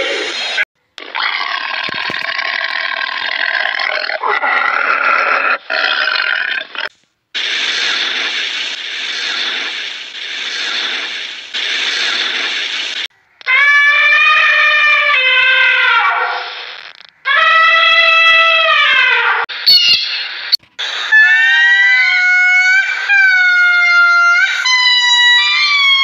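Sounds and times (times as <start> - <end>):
steady hiss: 7.0 - 13.1
pitched animal call: 13.2 - 16.6.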